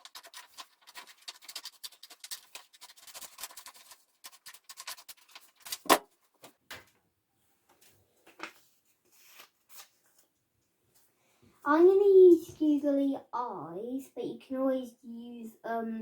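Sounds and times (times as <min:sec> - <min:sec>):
scissors snipping paper: 0:00.0 - 0:06.0.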